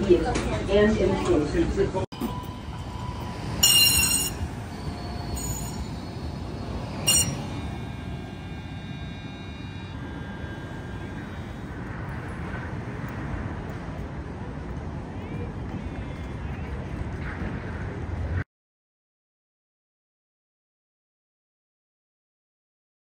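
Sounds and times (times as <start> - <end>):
trolley running rumble: 0.0 - 18.4
faint high whine: 2.1 - 18.4
short ringing tones: 2.2 - 12.4.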